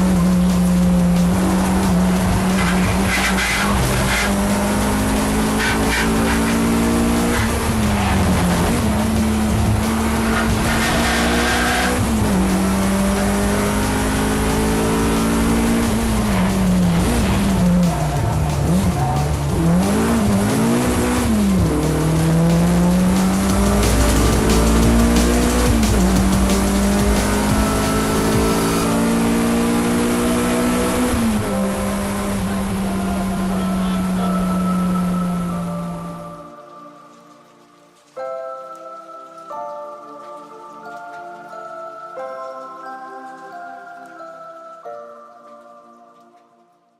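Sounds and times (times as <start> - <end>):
race car engine revving: 0.0 - 36.2.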